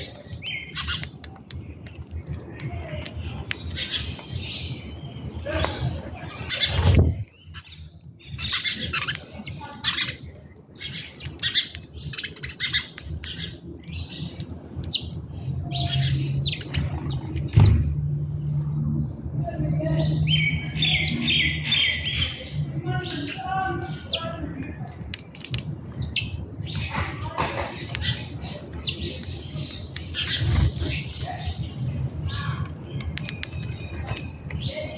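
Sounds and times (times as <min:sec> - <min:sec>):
birds chirping and squawking: 0:00.0 - 0:34.9
thump: 0:17.5 - 0:18.0.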